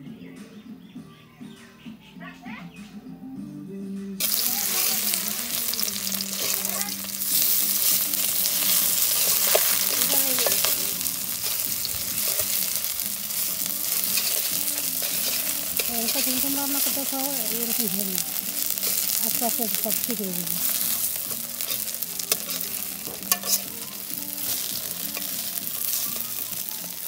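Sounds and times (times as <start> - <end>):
food sizzling in hot oil: 4.2 - 27.0
metal spatula scraping pan: 5.6 - 17.4, 20.6 - 26.8.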